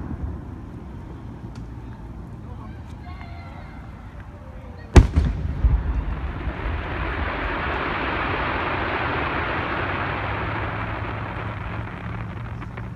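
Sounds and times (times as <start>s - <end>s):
firework boom: 5.0s - 12.9s
fireworks crackling hiss: 5.0s - 12.9s.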